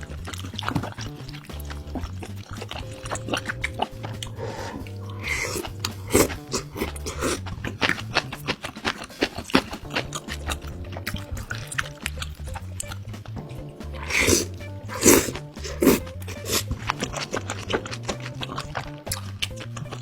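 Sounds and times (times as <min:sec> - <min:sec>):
chewing and crunching food: 0:00.0 - 0:20.0
quiet background music: 0:00.0 - 0:20.0.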